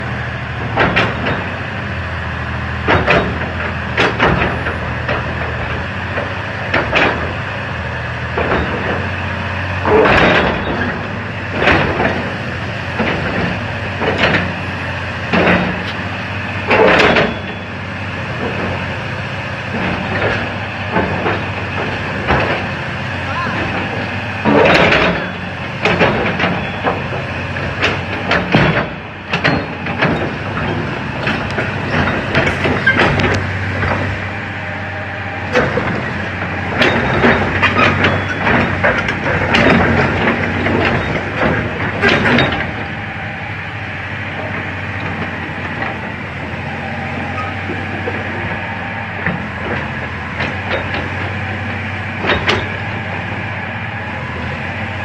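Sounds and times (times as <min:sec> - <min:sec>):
excavator diesel engine running: 0:00.0 - 0:55.0
metallic clanks and knocks: 0:00.6 - 0:34.4, 0:35.4 - 0:43.2, 0:44.0 - 0:54.5.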